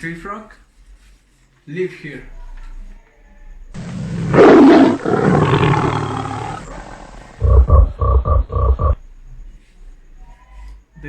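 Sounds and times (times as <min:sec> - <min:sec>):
jaguar roar: 0:03.8 - 0:09.0
tree frog croaks: 0:03.8 - 0:09.5.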